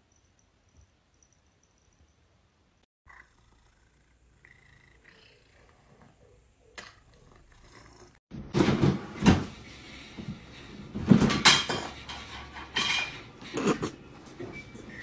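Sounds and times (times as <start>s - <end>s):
knocks and clatters of hard objects: 8.3s - 9.6s, 10.2s - 14.6s.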